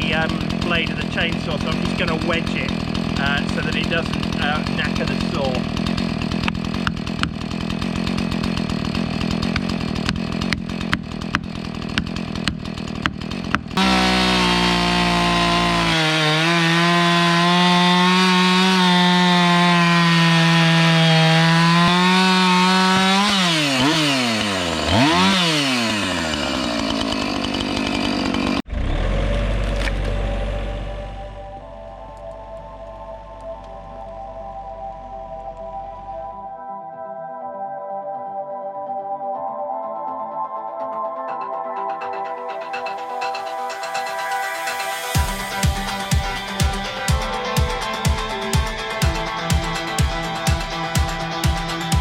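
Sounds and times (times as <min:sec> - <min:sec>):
chainsaw running: 0:00.0 - 0:31.6, 0:41.7 - 0:52.0
sharp knocks: 0:06.4 - 0:07.4, 0:09.5 - 0:13.7.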